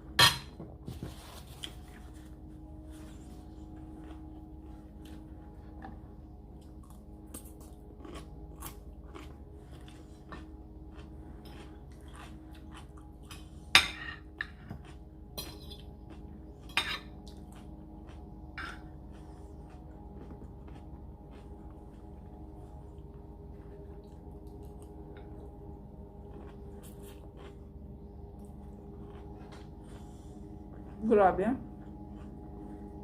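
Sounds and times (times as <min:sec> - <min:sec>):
utensils clinking on a plate: 0:00.2 - 0:00.6, 0:13.3 - 0:14.6, 0:15.4 - 0:15.9, 0:16.6 - 0:17.2
person chewing food: 0:01.4 - 0:31.0, 0:31.7 - 0:33.0.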